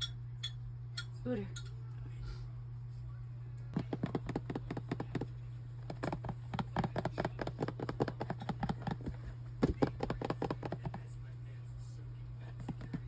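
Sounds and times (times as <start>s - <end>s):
kitten scratching and tapping: 3.8s - 11.2s, 12.4s - 13.0s.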